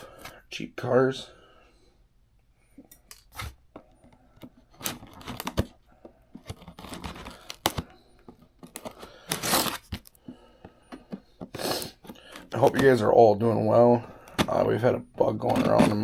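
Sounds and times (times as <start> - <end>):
packaging tearing: 6.4 - 7.9, 8.7 - 10.1
packaging crinkling: 6.4 - 8.0.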